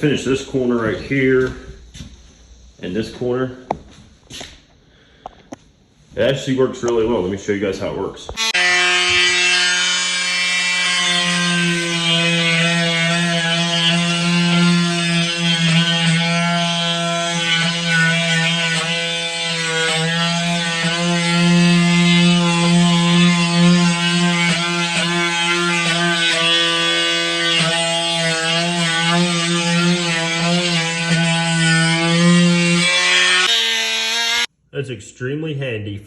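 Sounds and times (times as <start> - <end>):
oscillating tool sanding wood: 8.4 - 34.5.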